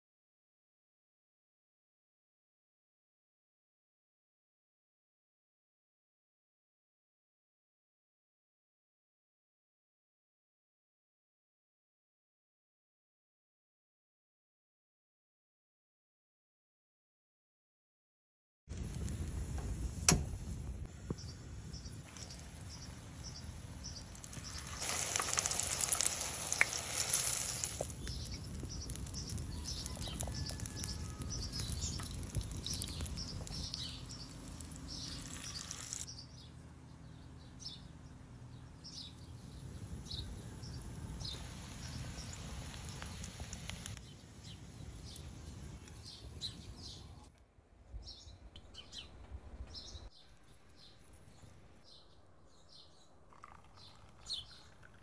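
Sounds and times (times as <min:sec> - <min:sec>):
crackling hiss: 0:18.7 - 0:36.1, 0:39.8 - 0:46.6
small birds chirping: 0:21.0 - 0:47.3, 0:48.0 - 0:54.9
low steady hiss: 0:39.2 - 0:47.2.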